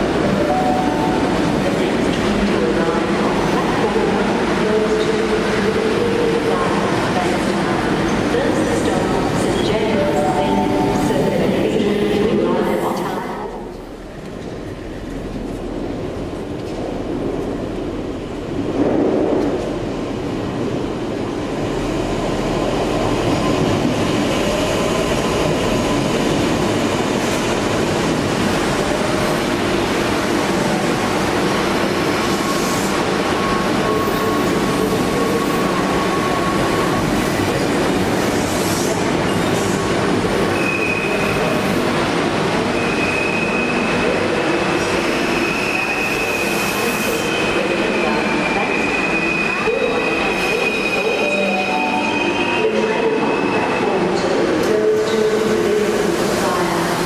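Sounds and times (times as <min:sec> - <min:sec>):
train rumbling on rails: 0:00.0 - 0:57.0
high wheel squeal: 0:42.8 - 0:44.0, 0:45.1 - 0:53.9.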